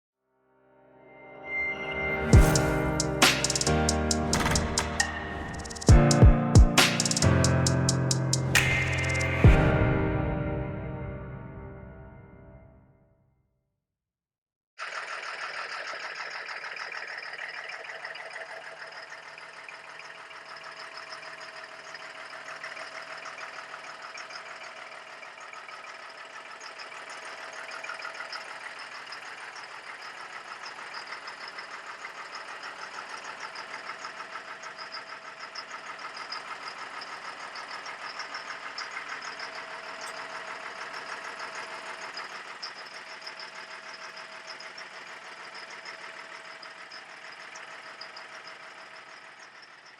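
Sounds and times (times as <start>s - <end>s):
diesel truck engine idling: 17.9s - 49.9s.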